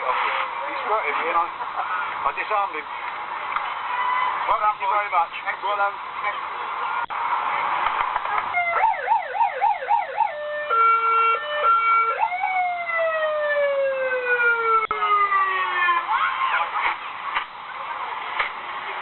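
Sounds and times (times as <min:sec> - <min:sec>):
fire engine siren: 0:08.4 - 0:17.0.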